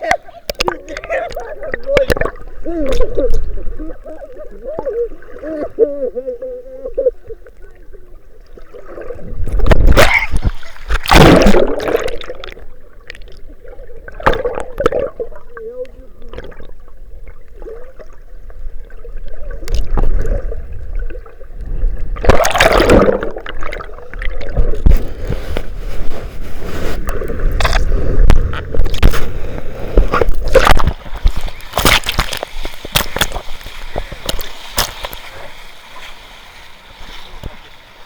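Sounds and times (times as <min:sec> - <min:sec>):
sea water sloshing: 0:08.5 - 0:37.7
sharp splashes and knocks: 0:09.5 - 0:13.2, 0:14.2 - 0:15.1, 0:22.2 - 0:23.8, 0:27.6 - 0:29.4, 0:30.0 - 0:35.3.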